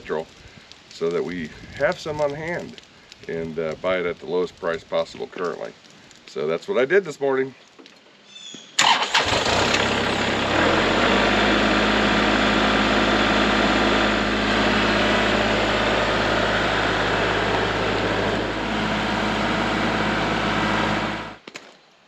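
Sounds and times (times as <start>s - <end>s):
engine cranking and idling: 8.8s - 21.4s.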